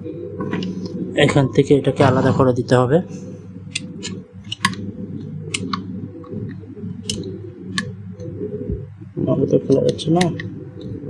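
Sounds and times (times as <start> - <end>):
steady low hum: 0.0 - 11.0
small clicks of iron parts: 3.7 - 4.8, 7.0 - 7.2.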